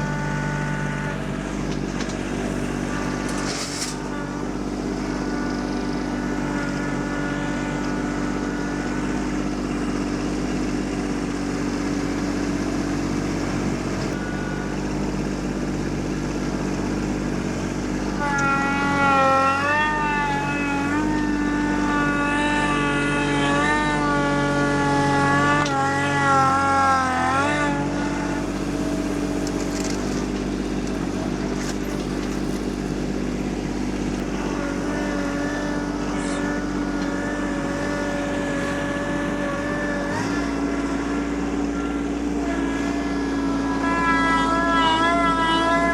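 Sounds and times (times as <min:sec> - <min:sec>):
tractor diesel engine running: 0:00.0 - 0:45.9
wavering whine: 0:17.4 - 0:45.9.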